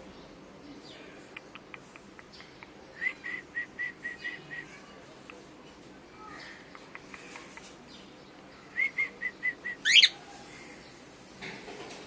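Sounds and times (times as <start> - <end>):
cockatiel warbling whistle: 9.8 - 10.1
cockatiel chirps: 9.8 - 10.2.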